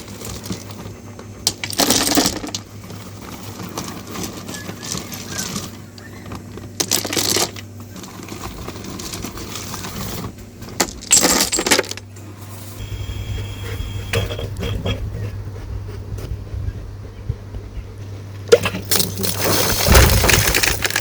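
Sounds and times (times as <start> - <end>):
steady low hum: 0.0 - 21.0
gravel pouring into a bucket: 18.8 - 21.0.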